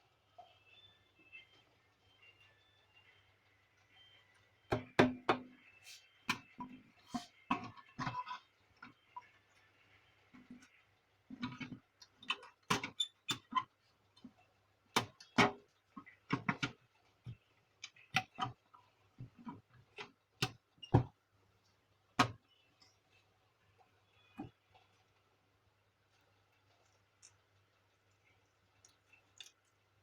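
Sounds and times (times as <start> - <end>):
plastic parts clicking and knocking: 7.5 - 9.0, 11.3 - 21.2, 22.2 - 22.5.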